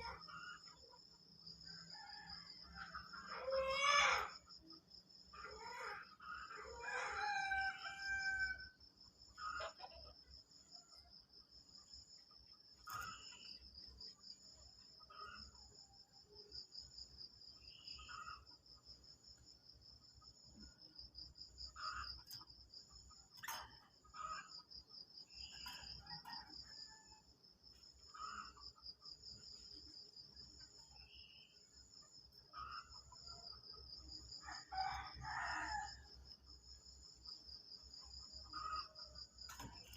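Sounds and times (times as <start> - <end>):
rooster crowing: 6.6 - 8.7, 26.0 - 27.2, 34.4 - 36.1.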